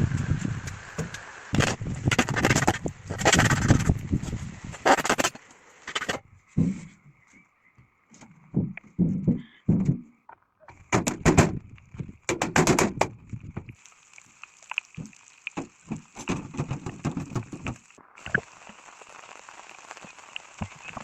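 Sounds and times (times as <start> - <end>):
rain hissing: 0.0 - 6.8, 10.8 - 21.0
loud knocks and rustles: 10.9 - 11.6, 12.3 - 13.2, 15.6 - 17.8
crackling and light clicks: 13.1 - 21.0.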